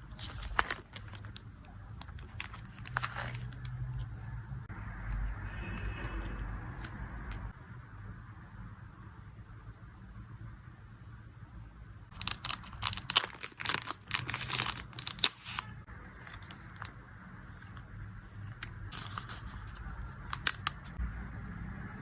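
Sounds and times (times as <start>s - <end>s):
plastic packaging crinkling: 0.0s - 3.8s, 12.1s - 17.0s.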